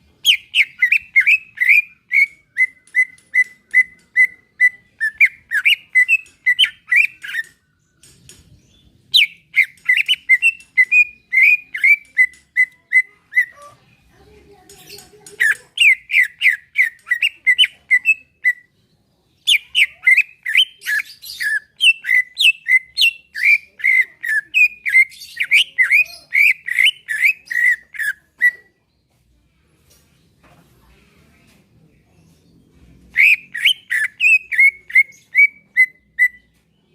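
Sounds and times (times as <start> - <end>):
bird singing whistled notes: 0.2 - 7.6, 8.7 - 13.5, 19.4 - 28.6, 33.1 - 36.6.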